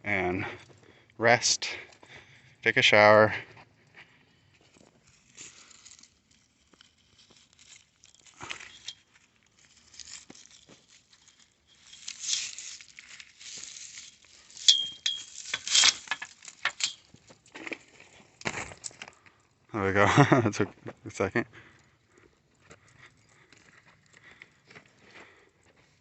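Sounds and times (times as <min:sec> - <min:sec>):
rustling and crinkling handling noise: 0:03.5 - 0:19.7.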